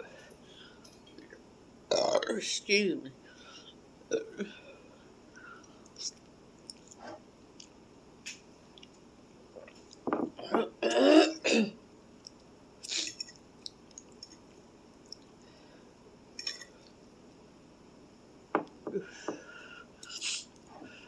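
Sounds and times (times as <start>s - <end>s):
woman coughing: 10.4s - 11.8s.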